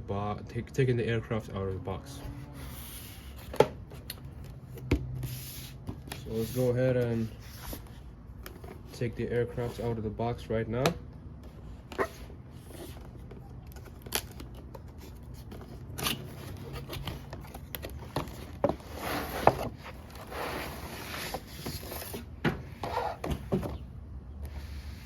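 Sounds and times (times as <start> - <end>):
cardboard box clicks and scrapes: 11.8 - 23.6.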